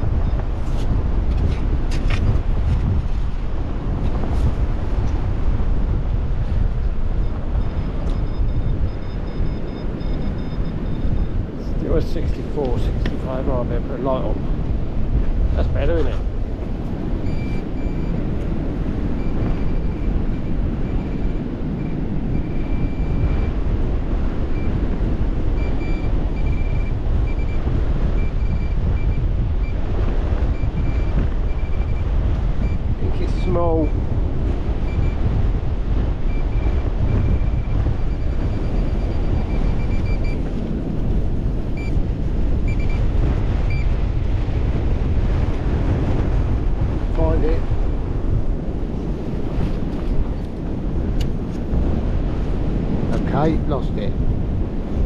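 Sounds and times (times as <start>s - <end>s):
wind buffeting microphone: 0.0s - 55.0s
metal detector beeping: 7.5s - 11.4s, 17.2s - 18.2s, 25.5s - 32.8s, 34.8s - 35.4s, 36.3s - 40.5s, 41.7s - 42.0s, 42.6s - 44.0s.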